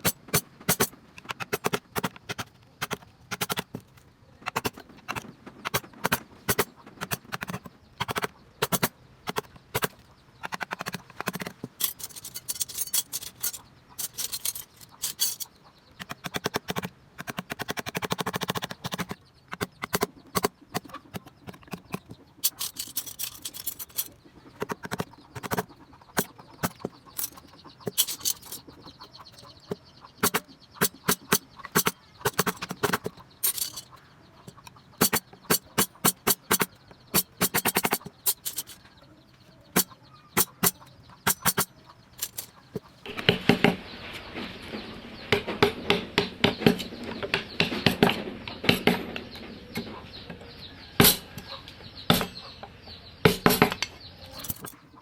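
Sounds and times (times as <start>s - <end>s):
carving tools tapping hardwood: 16.0s - 22.6s, 23.5s - 28.8s, 29.5s - 33.9s, 34.5s - 38.7s, 39.8s - 42.4s.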